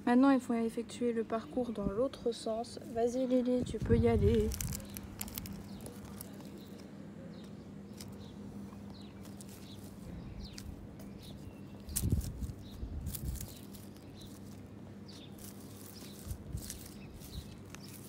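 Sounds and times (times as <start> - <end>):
low rumble of wind: 0.0 - 18.0
small birds chirping: 0.8 - 18.0
clicks and rustles in grass: 2.8 - 18.0.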